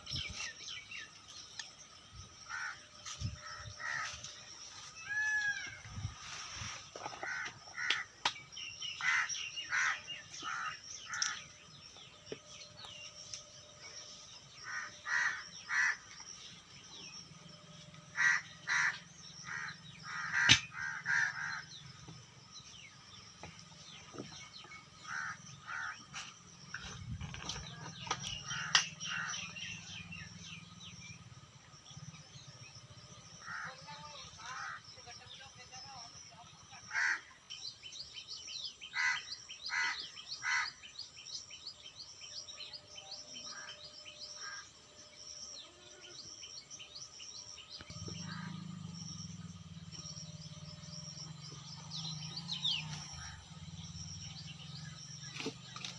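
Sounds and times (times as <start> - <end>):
crows cawing: 2.5 - 2.8, 3.4 - 4.2, 7.1 - 8.2, 9.0 - 11.5, 14.6 - 16.1, 18.1 - 21.8, 25.0 - 26.0, 28.4 - 29.7, 33.4 - 33.8, 34.5 - 34.8, 36.9 - 37.3, 38.9 - 40.8, 44.4 - 44.7.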